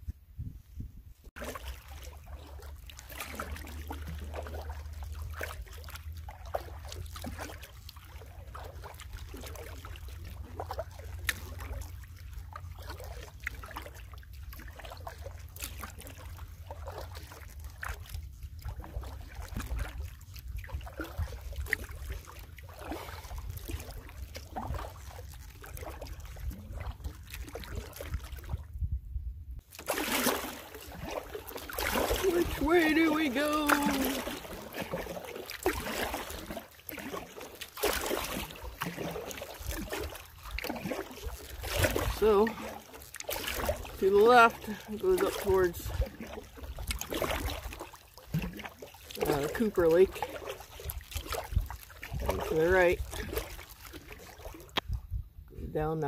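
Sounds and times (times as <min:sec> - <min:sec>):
water lapping at hull: 0:00.0 - 0:56.0
canoe paddle strokes: 0:00.4 - 0:28.7, 0:29.6 - 0:55.0
steady low rumble: 0:28.3 - 0:29.6.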